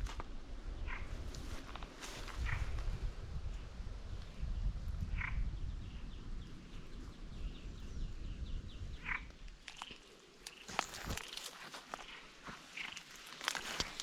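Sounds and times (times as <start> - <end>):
frog chirping: 9.0 - 9.3.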